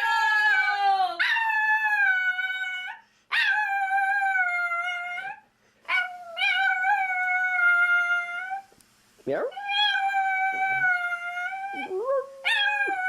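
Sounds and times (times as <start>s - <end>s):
dog howling: 0.0s - 8.7s, 9.6s - 13.0s.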